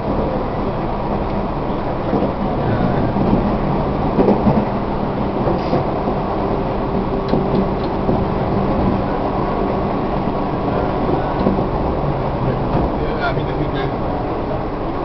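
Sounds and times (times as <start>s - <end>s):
track knocks: 0.0s - 15.0s
train motor and gear hum: 0.0s - 15.0s
train wheels rumbling on rail: 0.0s - 15.0s.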